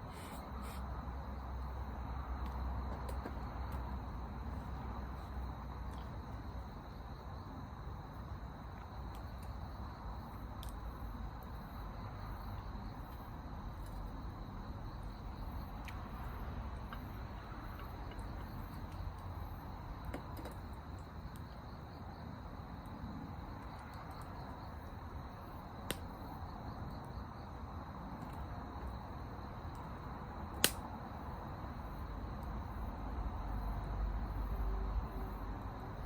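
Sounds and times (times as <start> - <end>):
crickets chirping: 0.0 - 36.0
low outdoor hiss: 0.0 - 36.0
sharp pops: 30.6 - 30.9.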